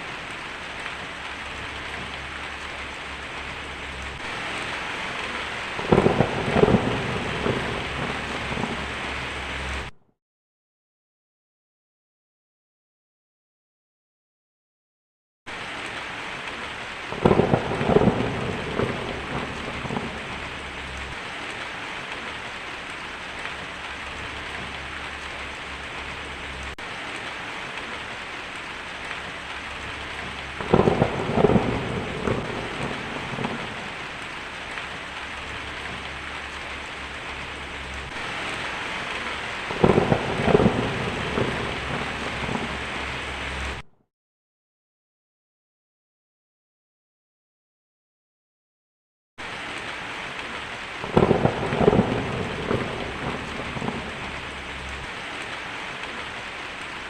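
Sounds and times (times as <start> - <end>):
heavy rain on a tin roof: 0.0 - 10.0, 15.5 - 43.9, 49.4 - 57.0
thunder rolling: 1.0 - 9.9, 17.1 - 21.6, 29.2 - 43.8, 51.0 - 55.1.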